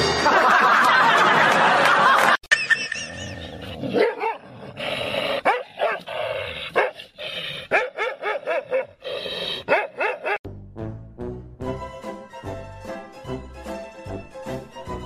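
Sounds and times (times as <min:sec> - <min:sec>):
dogs barking and yelping: 0:02.5 - 0:10.4
dogs growling: 0:03.5 - 0:10.4.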